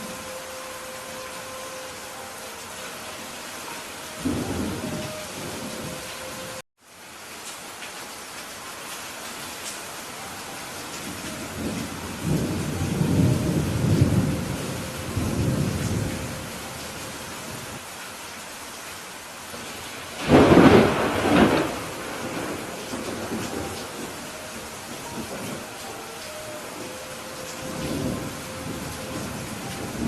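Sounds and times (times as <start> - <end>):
steady rain: 0.0 - 30.0
low rolling thunder rumble: 11.0 - 16.8, 20.2 - 25.8, 26.7 - 30.0
thunderclap: 20.2 - 24.2.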